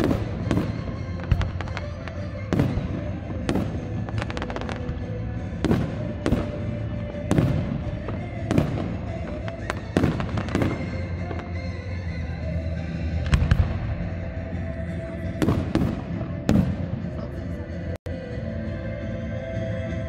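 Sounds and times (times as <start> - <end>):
firework bangs: 0.0 - 11.7, 13.2 - 14.2, 15.4 - 17.2
firework crackling: 0.0 - 11.8
music playing: 0.0 - 20.0.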